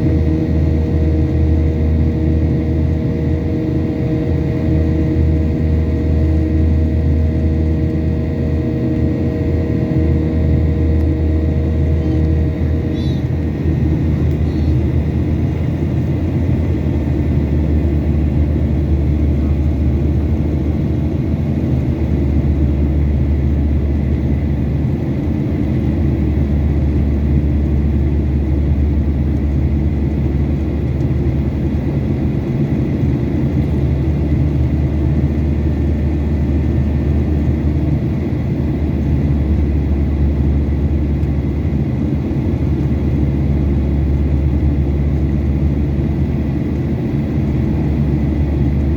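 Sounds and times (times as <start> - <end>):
jet engines rumbling: 0.0 - 48.9
faint whining tones: 3.2 - 17.5.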